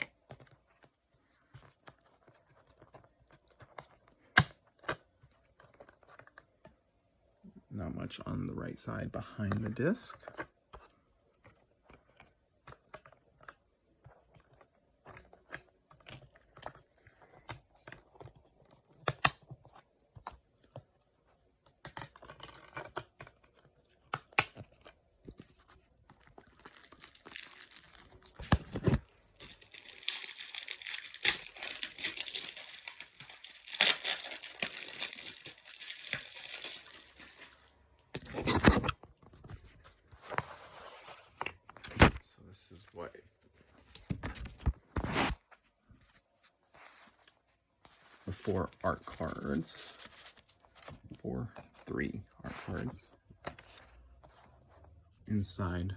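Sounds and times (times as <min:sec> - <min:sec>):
packaging crinkling rustle: 0:25.8 - 0:39.8.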